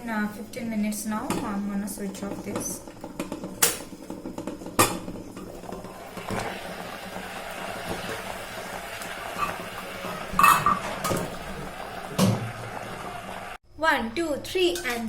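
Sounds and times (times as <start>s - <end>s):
metal cookware clattering: 1.2s - 6.6s, 9.0s - 12.6s.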